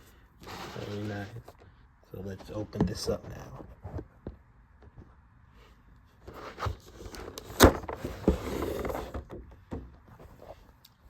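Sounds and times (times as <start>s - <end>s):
rough scrape: 0.0s - 1.5s.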